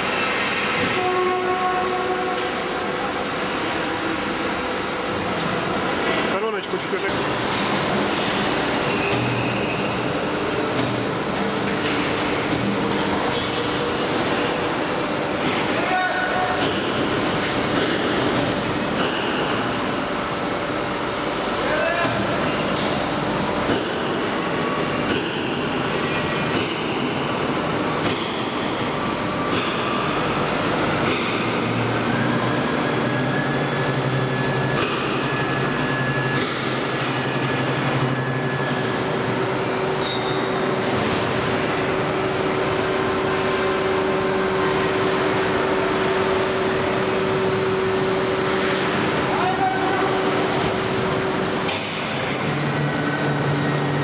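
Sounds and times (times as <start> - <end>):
train rumbling on rails: 0.0 - 54.0
thin squeal: 40.0 - 40.8.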